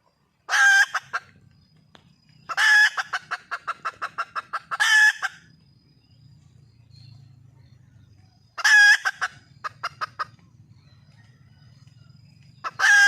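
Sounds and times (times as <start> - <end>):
hen clucking rapidly: 0.5 - 1.4, 2.4 - 5.6, 8.5 - 10.8, 12.6 - 13.0
hen calling loudly: 2.5 - 5.4.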